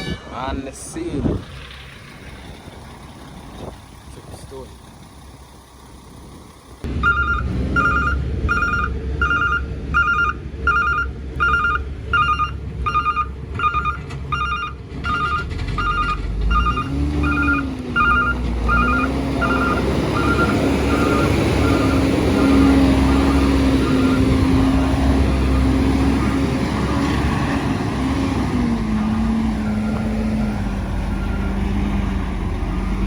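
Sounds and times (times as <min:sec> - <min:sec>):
truck engine rumbling: 0:00.0 - 0:33.0
truck reversing alarm beeping: 0:06.8 - 0:33.0.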